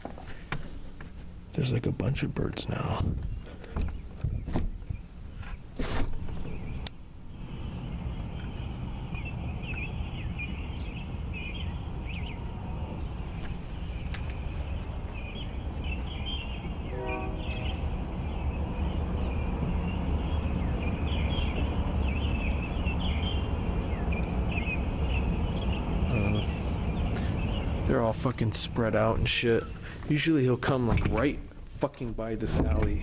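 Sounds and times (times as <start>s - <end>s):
small birds chirping: 0.0s - 33.0s
lower bird call: 2.8s - 30.0s
car engine idling: 6.2s - 30.3s.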